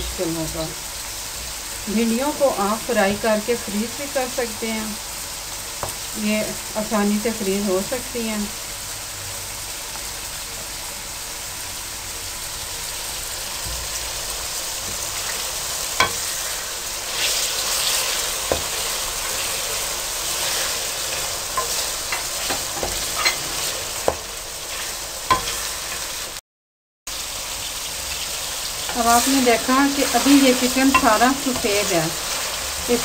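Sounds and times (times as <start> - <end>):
oil sizzling: 0.0 - 26.4, 27.1 - 33.0
spatula knocking against pot: 16.0 - 16.3, 30.9 - 31.7.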